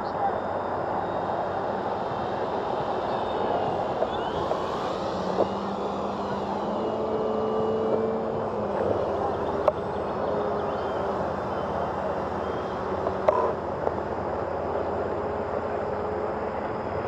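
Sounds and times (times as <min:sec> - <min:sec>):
outdoor background noise: 0:00.0 - 0:17.0
model airplane motor whine: 0:00.6 - 0:13.7.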